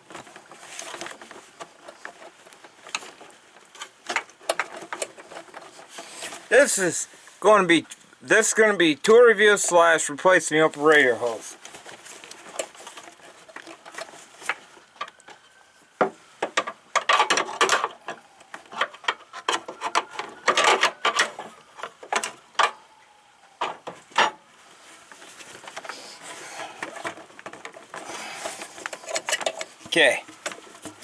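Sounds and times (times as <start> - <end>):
scraping and rubbing on rubber hose: 0.0 - 7.5, 10.7 - 16.0, 24.6 - 31.0.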